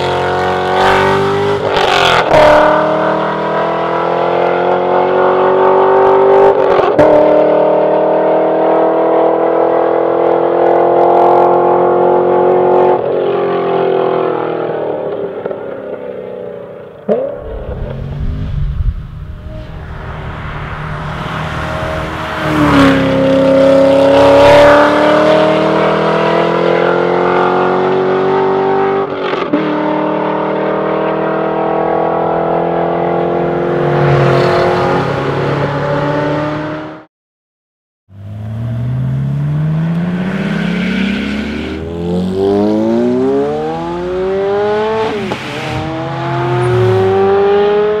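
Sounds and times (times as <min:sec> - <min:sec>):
car exhaust accelerating hard: 0:17.1 - 0:25.4.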